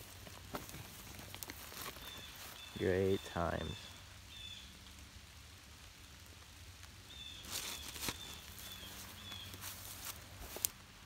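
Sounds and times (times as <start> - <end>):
footsteps on dry leaves: 0.0 - 3.9, 7.1 - 10.8
light rain sprinkling: 0.0 - 11.0.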